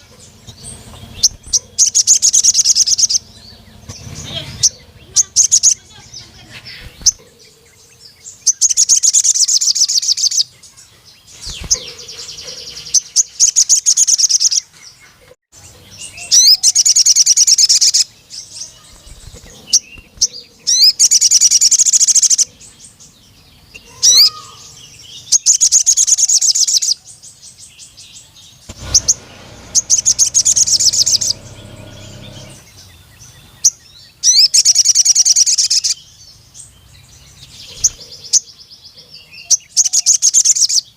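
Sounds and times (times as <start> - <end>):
bird singing high-pitched trills: 0.0 - 14.7, 15.6 - 38.6, 39.4 - 40.9.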